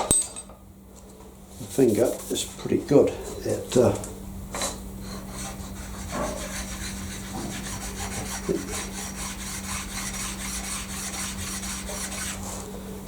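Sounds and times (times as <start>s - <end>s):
sharpening stone rubbing on steel: 5.1s - 12.4s.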